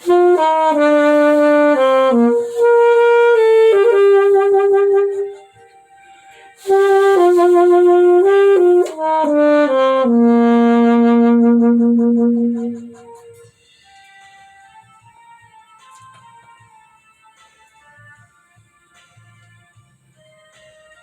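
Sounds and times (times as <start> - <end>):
solo saxophone melody: 0.0 - 13.5.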